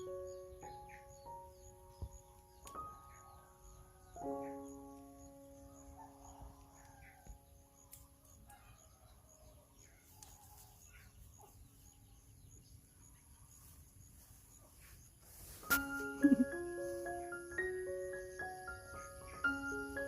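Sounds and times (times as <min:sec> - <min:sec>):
music chord: 0:15.7 - 0:20.0.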